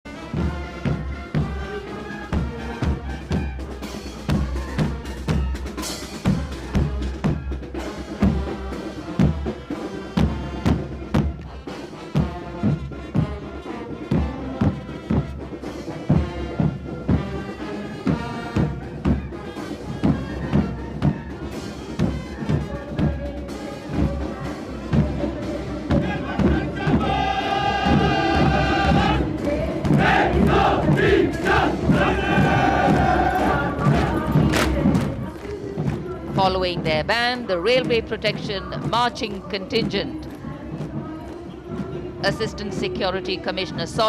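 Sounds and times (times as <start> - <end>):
marching band playing: 0.1 - 44.0
bass drum and snare beat: 0.3 - 11.6, 14.1 - 17.4, 24.9 - 41.0.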